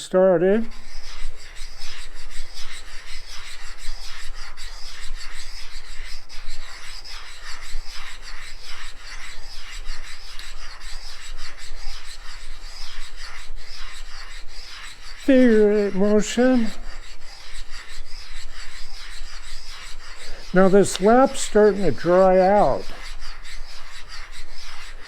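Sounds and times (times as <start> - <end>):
gritty scraping of metal lapping: 14.7 - 17.5, 18.7 - 23.1.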